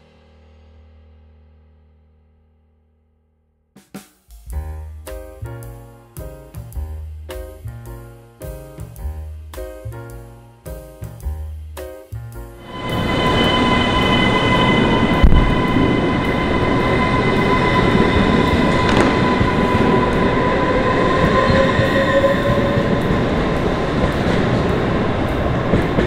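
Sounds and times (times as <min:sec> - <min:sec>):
train wheels rumbling on rails: 0:12.2 - 0:26.0
high steady whine: 0:12.6 - 0:26.0.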